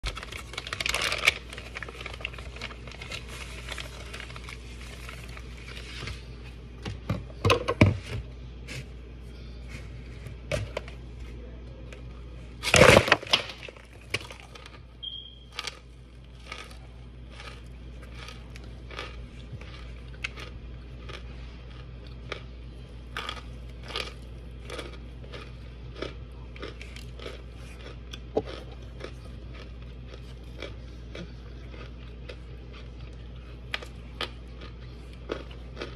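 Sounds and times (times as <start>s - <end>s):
wrapper crinkling: 0.0s - 6.0s
crunchy chewing: 13.7s - 35.9s.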